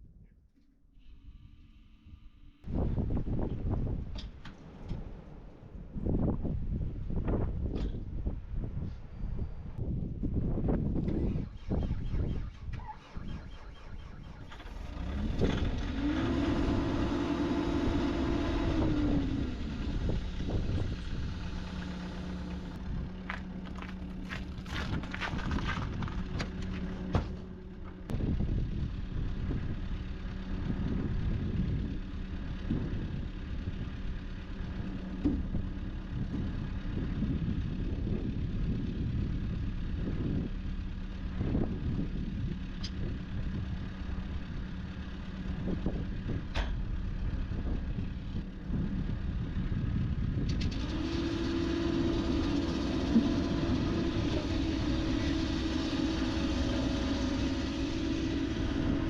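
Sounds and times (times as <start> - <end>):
excavator diesel engine running: 10.4 - 59.0.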